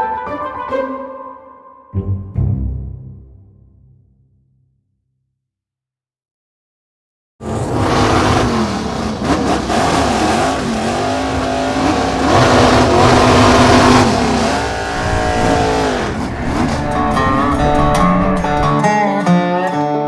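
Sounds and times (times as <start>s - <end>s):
electric motor and gears whining: 7.4s - 18.8s.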